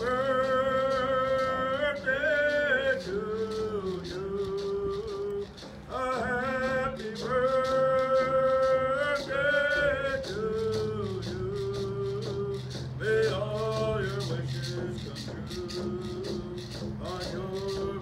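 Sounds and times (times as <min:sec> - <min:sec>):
group singing long notes: 0:00.0 - 0:18.0
steady percussion beat: 0:00.0 - 0:18.0.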